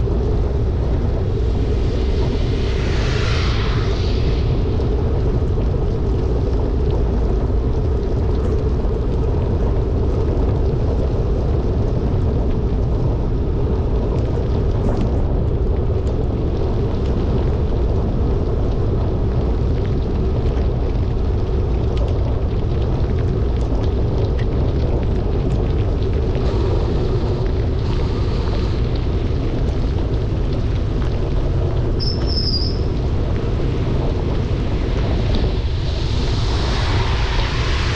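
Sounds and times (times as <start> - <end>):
heavy rain hissing: 0.0 - 10.4, 24.0 - 37.9
wind rumble on microphone: 0.0 - 37.9.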